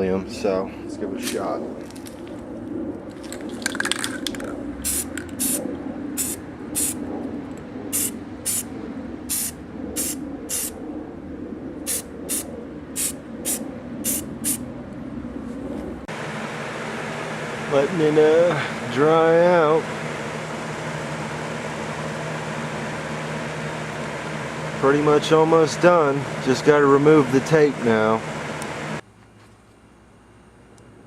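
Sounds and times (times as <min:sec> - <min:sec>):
spray paint can hissing: 0:04.8 - 0:05.6, 0:06.2 - 0:07.0, 0:07.9 - 0:08.7, 0:09.3 - 0:10.8, 0:11.9 - 0:14.6.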